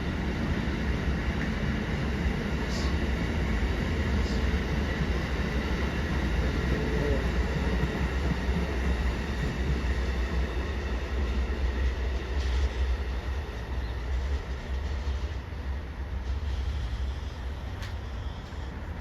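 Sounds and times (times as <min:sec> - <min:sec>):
train rumbling on track: 0:00.0 - 0:19.0.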